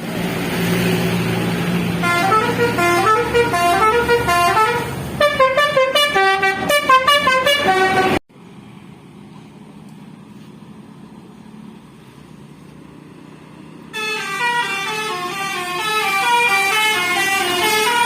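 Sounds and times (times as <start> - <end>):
bus engine: 0.0 - 18.0
bus multi-tone horn tune: 2.0 - 8.2, 13.9 - 18.0.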